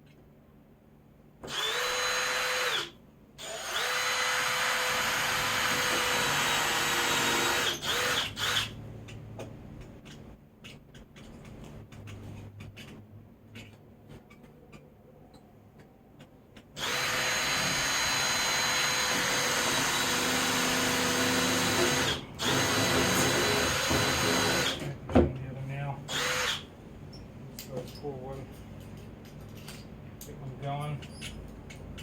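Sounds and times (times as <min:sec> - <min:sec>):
power drill drilling wood: 0:01.4 - 0:08.7, 0:16.8 - 0:24.8, 0:26.1 - 0:26.7.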